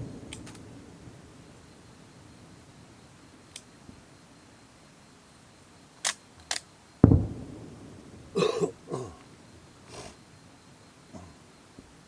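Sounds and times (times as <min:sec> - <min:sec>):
sharp clicks: 0:00.3 - 0:00.6
fireworks shell bursting: 0:07.0 - 0:08.4.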